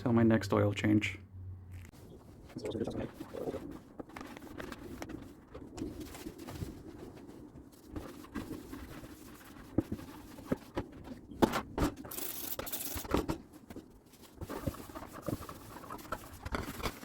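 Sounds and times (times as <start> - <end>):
small items knocking and clattering: 8.2 - 17.0.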